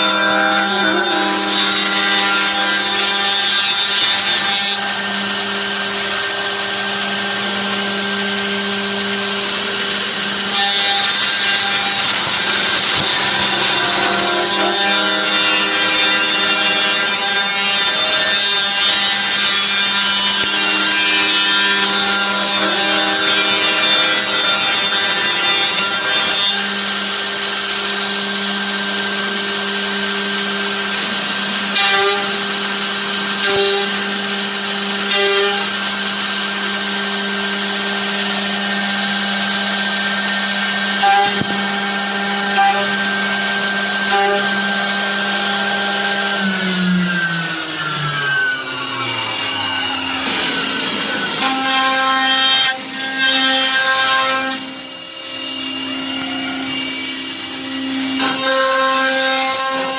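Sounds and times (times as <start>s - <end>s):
rough wood cutting noise: 0.0s - 59.9s
spindle whine: 4.3s - 25.6s, 35.6s - 53.0s.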